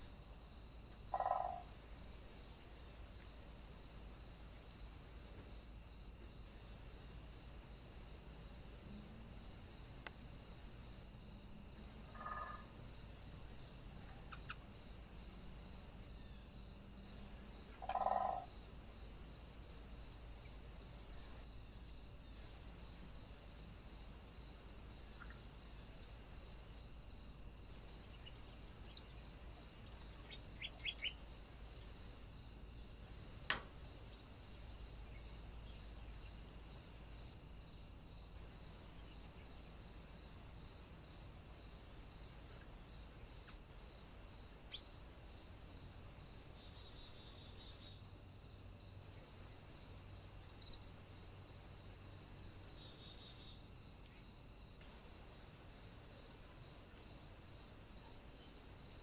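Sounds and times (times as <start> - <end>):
faint high hiss: 0.0 - 59.0
bird chirps: 30.1 - 31.2
sharp click: 33.5 - 33.8.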